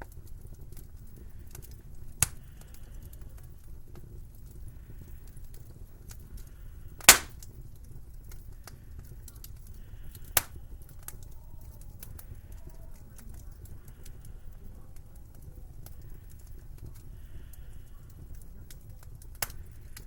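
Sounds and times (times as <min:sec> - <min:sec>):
wood fire crackling: 0:00.0 - 0:20.0
loud sharp fire pops: 0:07.0 - 0:07.5.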